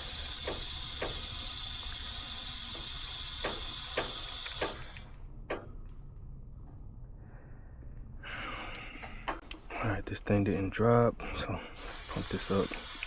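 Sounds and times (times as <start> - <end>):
gas hissing through a hose: 0.0 - 5.2, 11.8 - 13.0.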